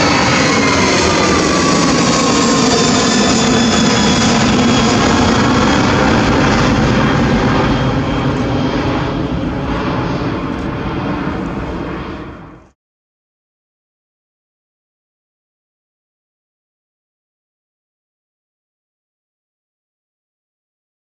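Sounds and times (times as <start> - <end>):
jet engines rumble and whine: 0.0 - 12.8.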